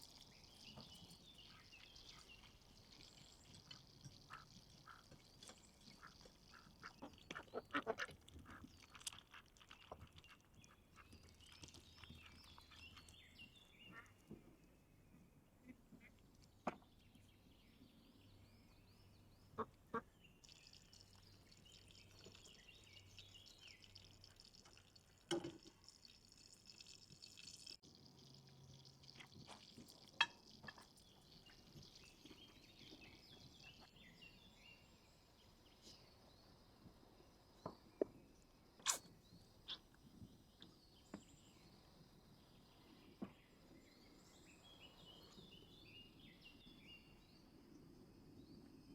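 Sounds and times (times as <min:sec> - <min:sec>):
birds chirping: 0:00.0 - 0:14.4, 0:28.2 - 0:47.4.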